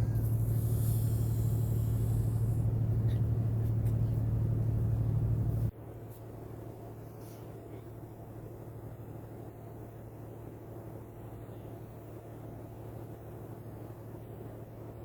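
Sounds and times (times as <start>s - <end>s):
ship engine droning: 0.0s - 5.7s.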